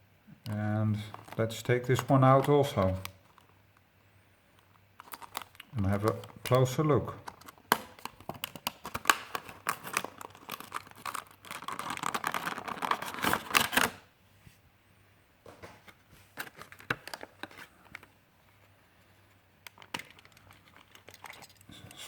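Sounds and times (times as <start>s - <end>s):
packaging crinkling and tearing: 0.9s - 3.6s, 4.6s - 14.1s, 16.3s - 18.1s, 19.7s - 21.7s.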